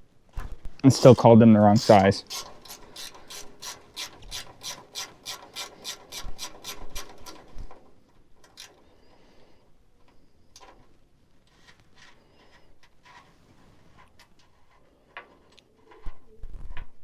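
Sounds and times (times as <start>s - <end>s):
ratchet wrench clicking: 1.8s - 7.6s, 8.4s - 8.8s.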